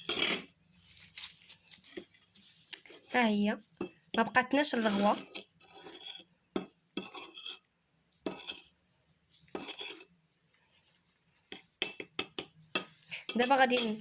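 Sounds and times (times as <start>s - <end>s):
spoon scraping a bowl: 0.0s - 0.6s, 2.7s - 10.1s, 10.8s - 14.0s.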